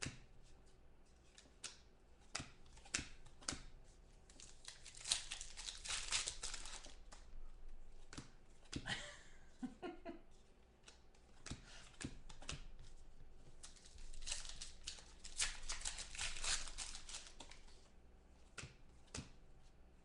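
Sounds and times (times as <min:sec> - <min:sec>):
cards clicking and tapping: 0:01.4 - 0:07.3, 0:08.0 - 0:08.9, 0:10.8 - 0:17.8, 0:18.5 - 0:19.4
wrappers crinkling and tearing: 0:04.3 - 0:07.3, 0:13.6 - 0:17.8.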